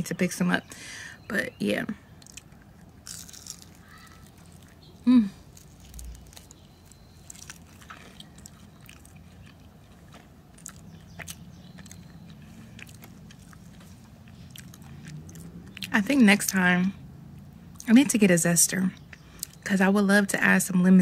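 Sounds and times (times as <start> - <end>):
person chewing: 2.1 - 15.9.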